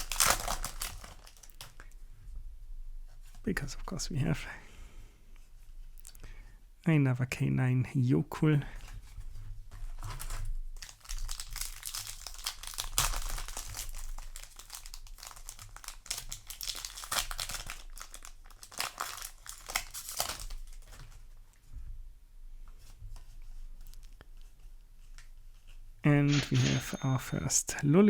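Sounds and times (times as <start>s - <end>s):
foil wrapper tearing and crinkling: 0.0s - 1.7s, 10.0s - 21.1s.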